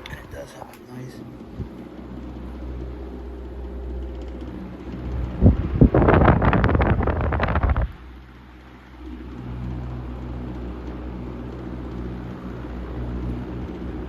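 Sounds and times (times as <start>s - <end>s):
fan air buffeting microphone: 0.0s - 14.0s
fan motor hum: 0.0s - 14.0s
whoosh of moving air: 5.0s - 8.1s.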